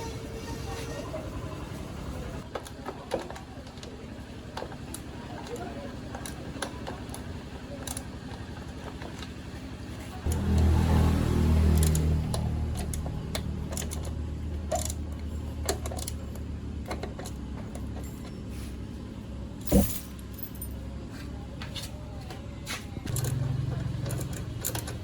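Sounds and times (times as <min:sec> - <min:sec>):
motorbike engine idling: 0:00.0 - 0:25.0
metallic clicks: 0:11.7 - 0:17.4.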